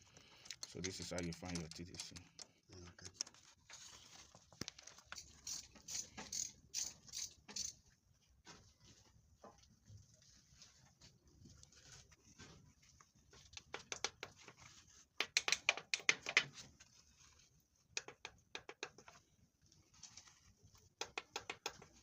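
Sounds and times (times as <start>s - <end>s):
rapid ratchet clicks: 5.2s - 7.8s.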